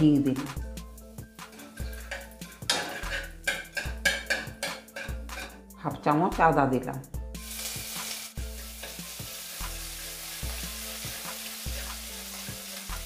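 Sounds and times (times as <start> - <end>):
metal spatula scraping pan: 1.4 - 5.6
paste sizzling in hot oil: 7.4 - 13.0.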